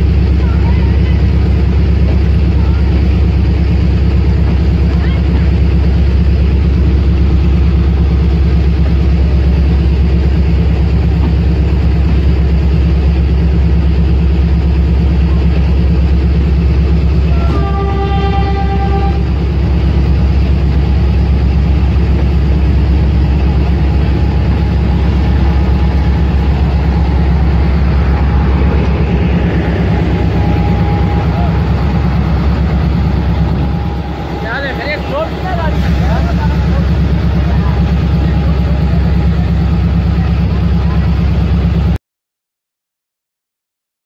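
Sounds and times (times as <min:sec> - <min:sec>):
diesel train engine hum: 0:00.0 - 0:42.0
train horn: 0:17.2 - 0:19.4, 0:30.1 - 0:34.4.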